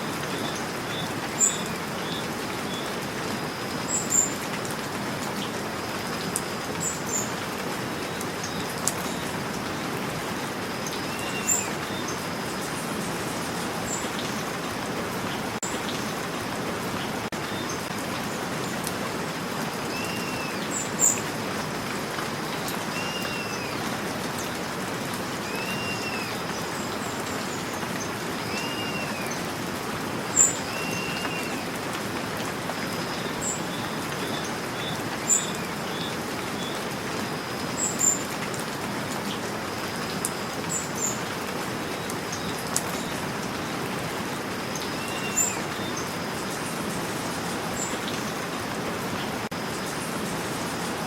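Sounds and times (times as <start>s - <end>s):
steady rain: 0.0s - 51.0s.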